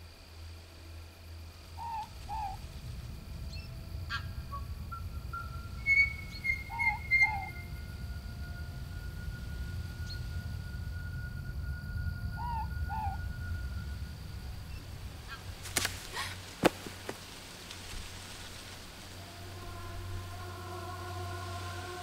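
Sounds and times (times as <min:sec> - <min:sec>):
low steady rumble: 0:00.0 - 0:22.0
hooting bird calls: 0:01.7 - 0:02.7, 0:03.5 - 0:08.4, 0:12.2 - 0:13.6, 0:14.6 - 0:16.6.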